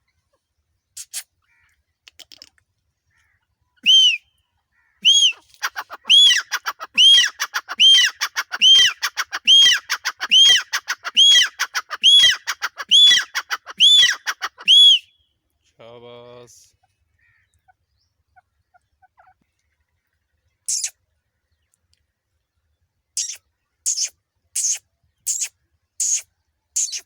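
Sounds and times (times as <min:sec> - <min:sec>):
francolin calling: 0:03.2 - 0:15.4, 0:20.6 - 0:21.0, 0:23.2 - 0:27.0.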